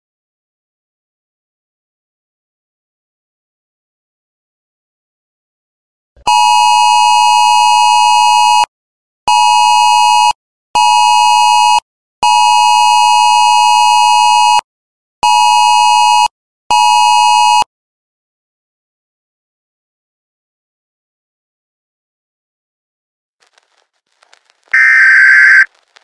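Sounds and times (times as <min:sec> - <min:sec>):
buzzy electronic beep: 0:24.8 - 0:25.7.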